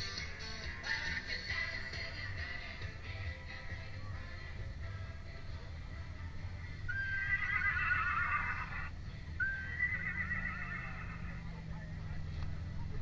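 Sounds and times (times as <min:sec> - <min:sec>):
horse neighing: 0:06.9 - 0:11.5.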